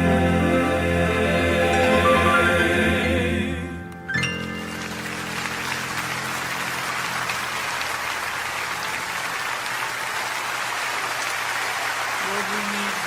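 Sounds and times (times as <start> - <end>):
song's final chord: 0.0 - 7.3
audience applauding: 4.4 - 13.0.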